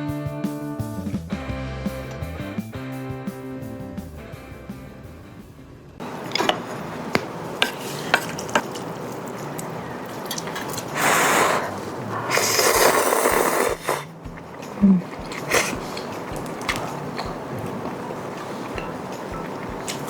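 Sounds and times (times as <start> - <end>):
utensils clicking against bowl: 6.2 - 11.0, 12.3 - 20.0
noodle slurping: 10.3 - 20.0.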